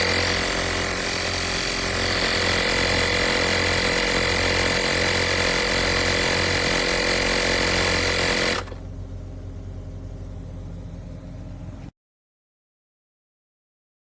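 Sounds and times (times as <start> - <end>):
tire inflator compressor buzzing: 0.0 - 9.2
low hum: 8.2 - 11.9.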